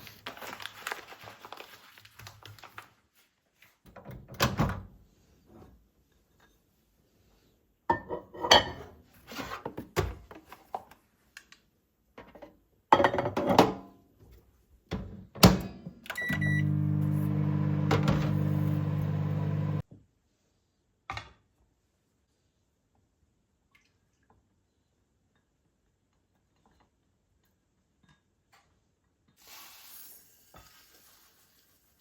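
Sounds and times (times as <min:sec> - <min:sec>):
kitchen clatter of knocks: 0:13.0 - 0:13.8
microwave humming: 0:16.1 - 0:19.8
short button beep: 0:16.2 - 0:16.8
microwave door shutting: 0:16.2 - 0:19.8.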